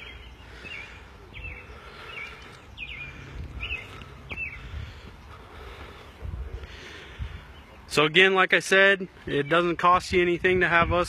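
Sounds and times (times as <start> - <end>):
small bird chirping: 0.0 - 4.7.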